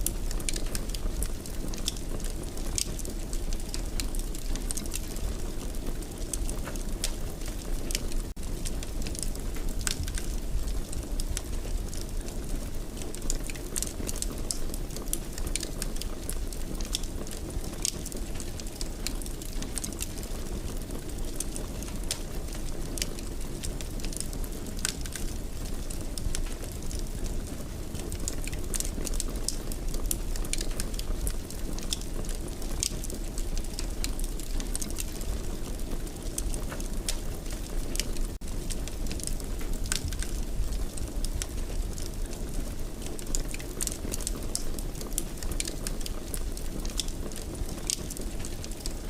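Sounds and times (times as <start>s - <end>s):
low rumble of burning: 0.0s - 49.0s
wood fire crackling and popping: 0.0s - 49.0s.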